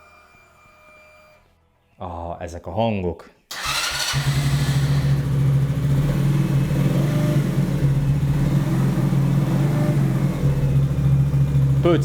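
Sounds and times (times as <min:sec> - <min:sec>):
scooter engine running: 0:03.5 - 0:12.0.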